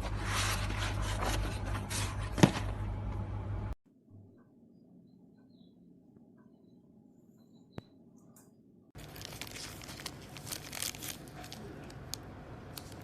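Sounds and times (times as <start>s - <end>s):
crinkling and tearing: 9.0s - 13.0s.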